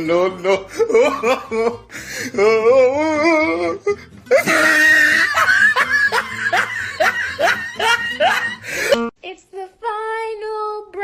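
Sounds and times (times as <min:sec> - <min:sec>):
person laughing hard: 0:00.4 - 0:02.7, 0:03.4 - 0:09.1.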